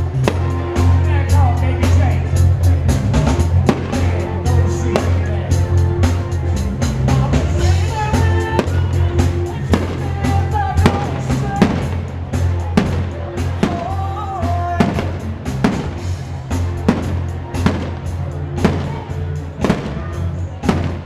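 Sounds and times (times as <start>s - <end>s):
loud music with heavy bass: 0.0s - 21.0s
fireworks banging: 0.2s - 1.0s, 3.6s - 5.3s, 8.2s - 21.0s.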